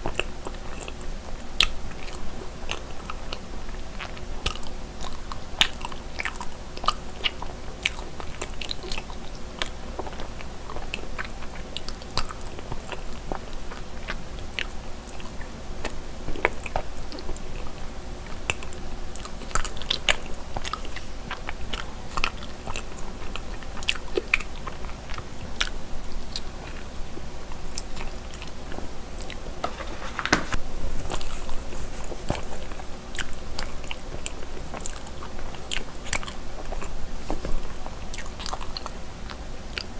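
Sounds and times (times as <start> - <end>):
close-miked chewing: 0.0 - 39.9.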